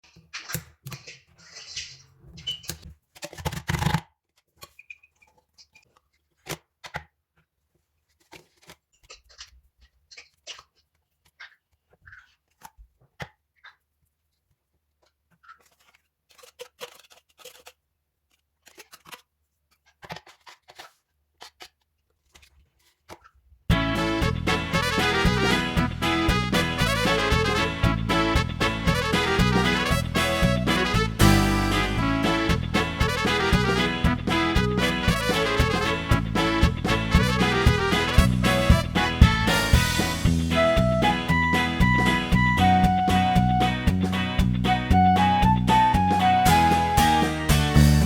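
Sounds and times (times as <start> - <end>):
cat eating crunching: 15.5 - 17.8.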